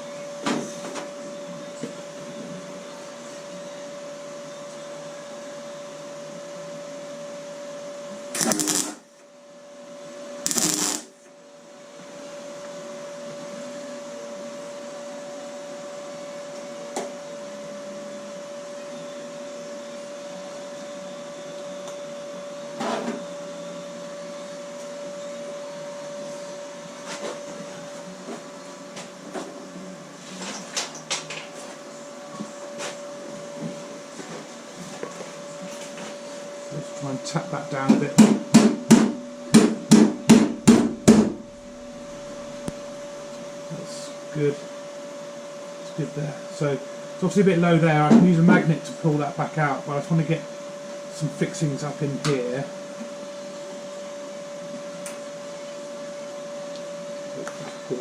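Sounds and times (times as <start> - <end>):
steady hum: 8.3 - 9.2, 10.5 - 11.4, 38.8 - 47.8
tack welding bursts: 8.4 - 9.0, 10.5 - 11.1.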